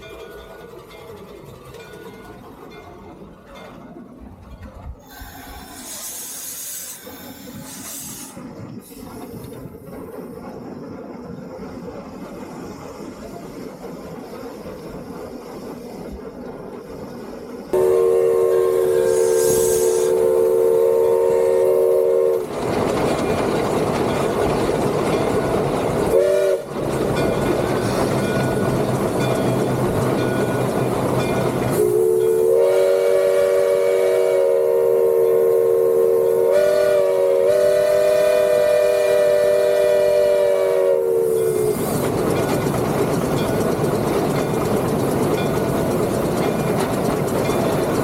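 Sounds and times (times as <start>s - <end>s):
locomotive running noise: 0.0s - 48.0s
steam whistle blasts: 17.8s - 22.5s, 26.1s - 26.7s, 31.7s - 41.9s.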